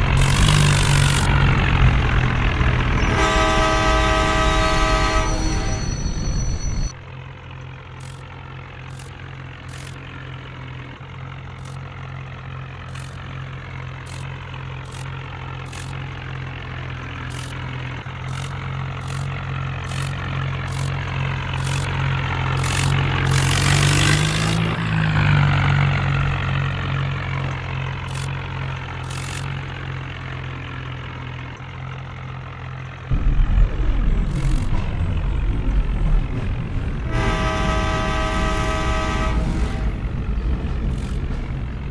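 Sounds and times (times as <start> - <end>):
vehicle passing by: 0.0 - 5.7, 21.6 - 27.4
deep engine starting: 0.0 - 7.0, 17.3 - 29.9, 33.1 - 41.9
heavy vehicle engines idling: 0.0 - 41.9.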